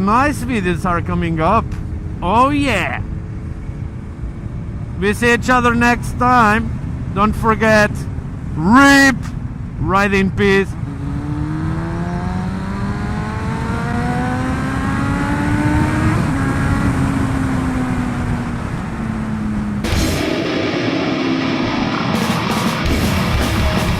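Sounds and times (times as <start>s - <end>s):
motorcycle engine accelerating: 10.7s - 23.9s
heavy rock music: 19.8s - 23.9s.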